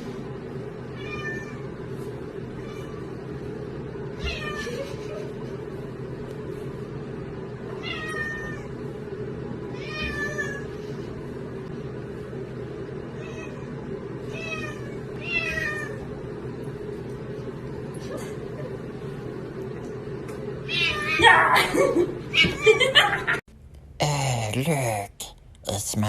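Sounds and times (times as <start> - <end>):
low background hum: 0.0 - 26.0
cat meowing: 1.0 - 1.6, 4.2 - 4.8, 7.8 - 8.7, 9.8 - 10.7, 14.3 - 16.0, 20.7 - 21.4.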